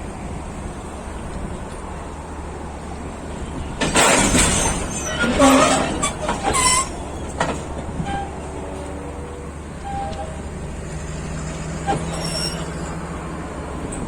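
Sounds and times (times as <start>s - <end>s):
train engine rumbling: 0.0s - 14.0s
squeals and knocks: 3.8s - 8.4s, 11.8s - 13.0s.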